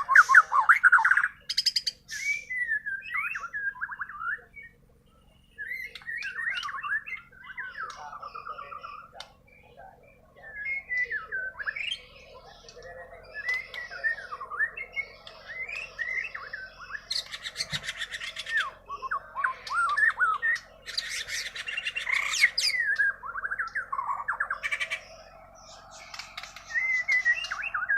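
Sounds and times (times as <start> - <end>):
bird whistled song: 0.0 - 27.9
bird rattling trills: 23.7 - 27.9.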